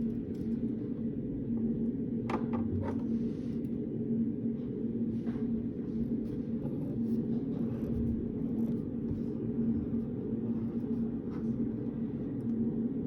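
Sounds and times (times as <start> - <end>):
ventilation hum: 0.0 - 13.0
pen scratching on paper: 6.3 - 9.3.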